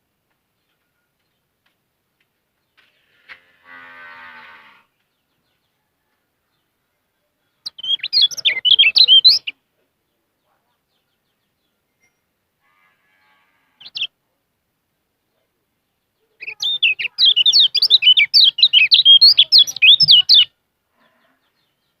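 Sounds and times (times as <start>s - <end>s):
songbird warbling chirps: 7.6s - 9.6s, 13.8s - 14.1s, 16.0s - 20.6s.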